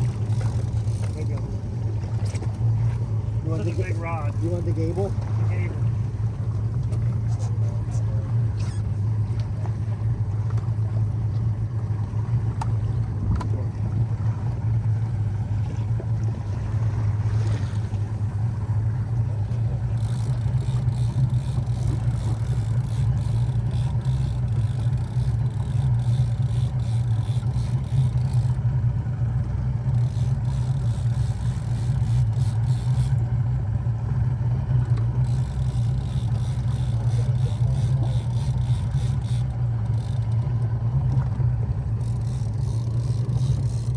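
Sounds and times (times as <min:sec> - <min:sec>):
boat engine humming: 0:00.0 - 0:43.9.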